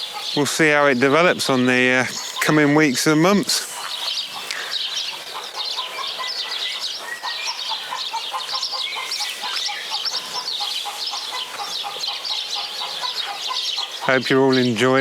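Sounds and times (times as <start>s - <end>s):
birds chirping and twittering: 0.0s - 15.0s.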